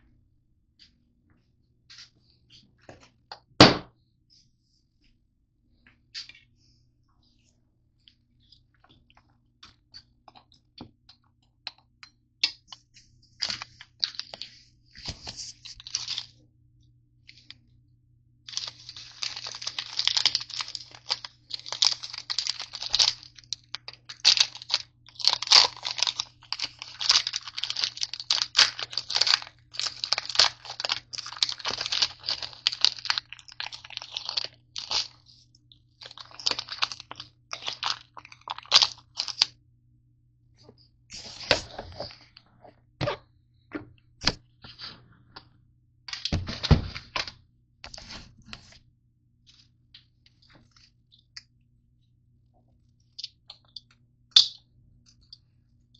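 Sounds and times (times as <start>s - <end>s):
granola bars crunching: 13.4s - 16.3s, 18.5s - 39.5s.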